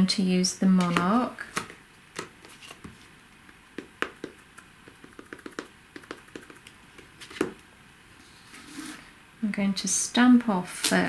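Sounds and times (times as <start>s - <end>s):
ink pad tapping on stamp: 3.8s - 6.7s.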